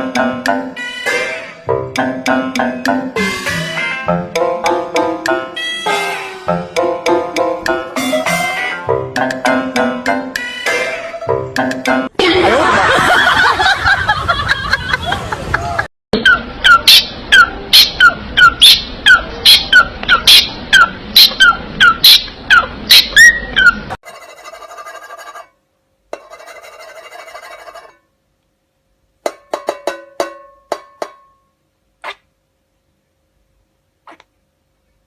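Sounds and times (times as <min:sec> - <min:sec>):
parrot calling: 0:10.4 - 0:11.4, 0:16.2 - 0:24.0.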